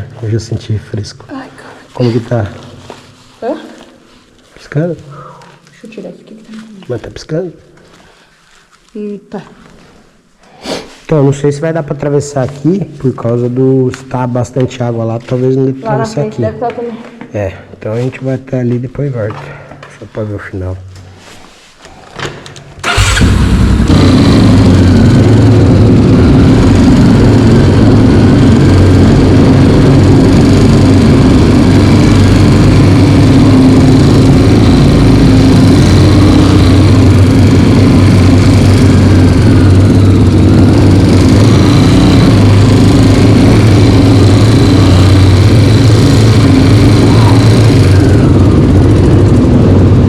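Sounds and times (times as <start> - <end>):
dirt bike engine running: 22.8 - 50.0.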